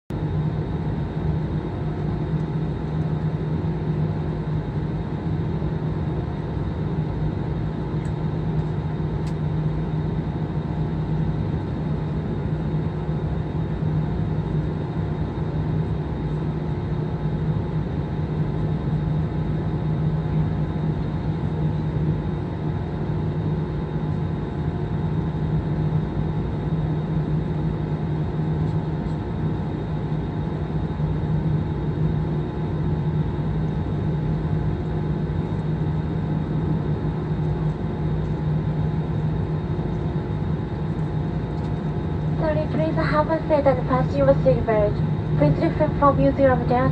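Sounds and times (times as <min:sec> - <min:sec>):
airliner cabin drone: 0:00.1 - 0:46.9
faint steady tones: 0:40.4 - 0:46.9.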